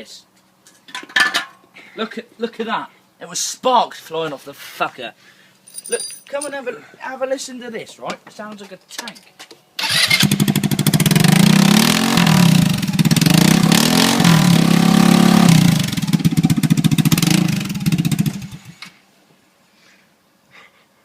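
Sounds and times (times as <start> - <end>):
loud scooter engine revving: 9.9 - 18.8.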